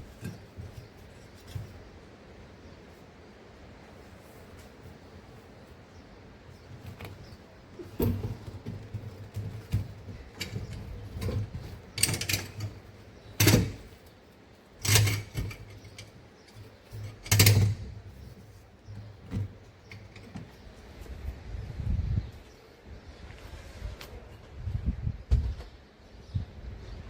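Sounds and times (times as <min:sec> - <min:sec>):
knocks of tools being handled: 0:06.7 - 0:14.2, 0:14.8 - 0:20.6.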